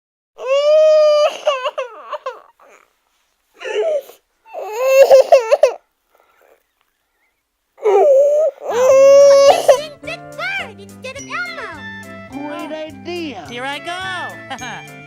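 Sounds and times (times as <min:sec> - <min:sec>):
high-pitched wordless voice: 0:08.7 - 0:14.9.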